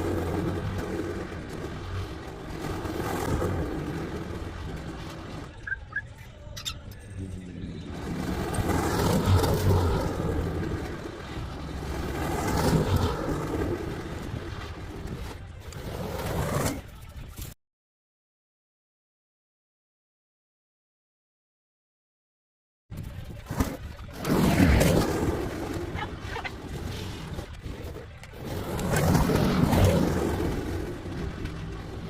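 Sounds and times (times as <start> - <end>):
faint bird chirping: 5.5 - 7.9.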